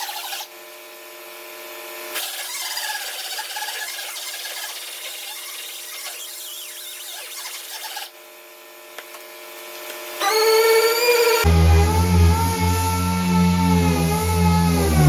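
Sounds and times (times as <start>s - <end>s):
handheld grinder on sheet metal: 0.0s - 0.6s, 2.1s - 8.2s, 10.2s - 15.0s
electronic music: 11.4s - 15.0s.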